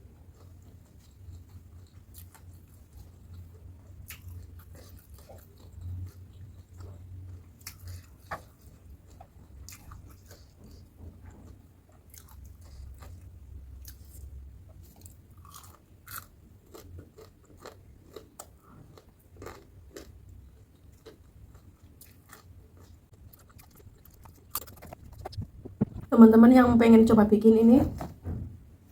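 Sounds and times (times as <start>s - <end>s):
crunching fried food: 0.2s - 10.8s, 11.4s - 26.1s
wet chewing: 14.9s - 26.1s
steady low hum: 18.6s - 28.9s.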